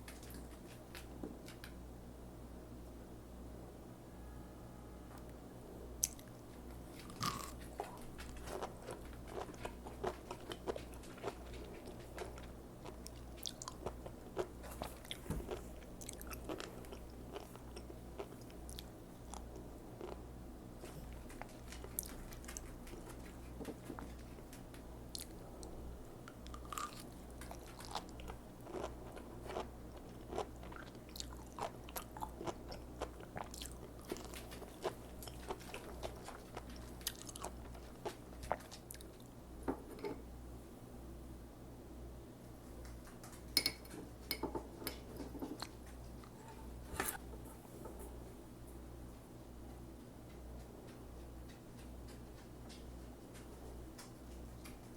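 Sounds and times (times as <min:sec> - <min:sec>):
steady low hum: 0:00.0 - 0:54.9
chewing crisp crunches: 0:06.0 - 0:25.4, 0:26.3 - 0:39.3.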